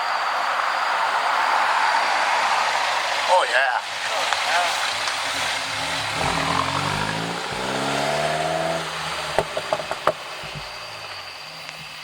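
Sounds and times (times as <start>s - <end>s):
car engine accelerating: 4.2s - 12.0s
exhaust cracks: 4.6s - 12.0s.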